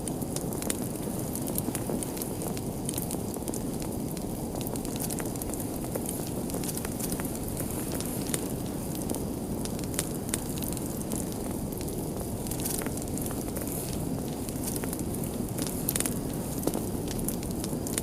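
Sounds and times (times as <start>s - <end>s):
fire popping and snapping: 0.0s - 18.0s
low rumble of burning: 0.0s - 18.0s.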